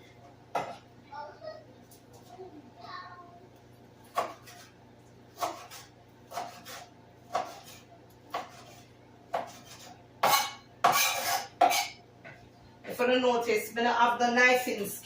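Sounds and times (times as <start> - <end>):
knife chopping on cutting board: 4.1 - 4.7, 5.4 - 11.9.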